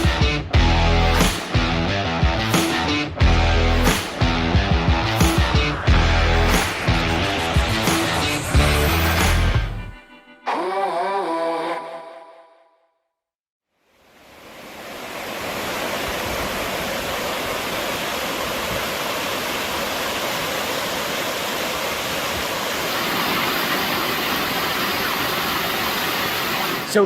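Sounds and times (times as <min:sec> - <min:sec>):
rushing water: 0:13.9 - 0:27.0.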